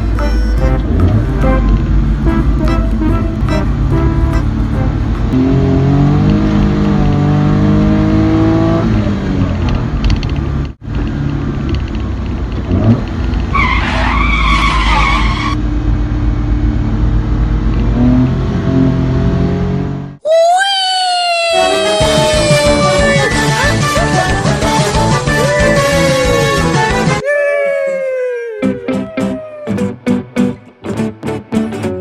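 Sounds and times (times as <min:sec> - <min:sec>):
high-pitched squeal: 0:13.5 - 0:15.6, 0:21.2 - 0:23.8.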